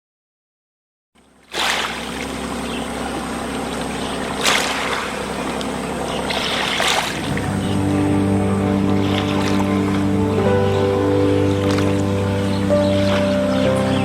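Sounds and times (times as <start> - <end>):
water rushing and splashing: 1.5 - 14.0
boat engine running: 1.9 - 14.0.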